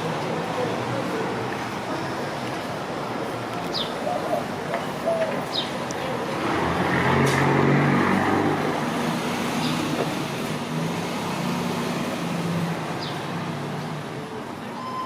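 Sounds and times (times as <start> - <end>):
vehicle passing: 6.2 - 14.2.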